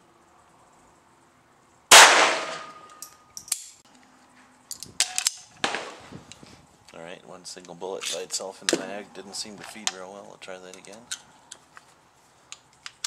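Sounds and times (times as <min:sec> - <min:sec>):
pistol shot: 0:01.9 - 0:02.9
metallic clicks: 0:02.8 - 0:03.8
pistol handling clacks: 0:12.5 - 0:13.0.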